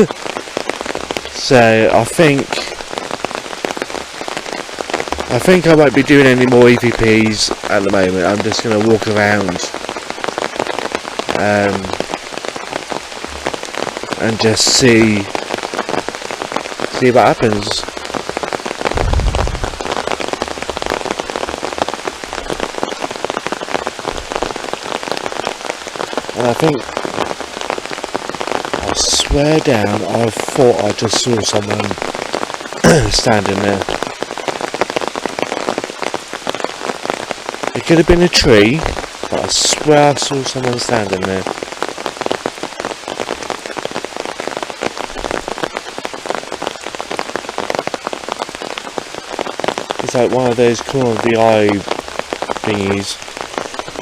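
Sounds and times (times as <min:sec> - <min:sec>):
heavy rain pattering: 0:00.0 - 0:54.0
short low rumble: 0:18.9 - 0:19.8.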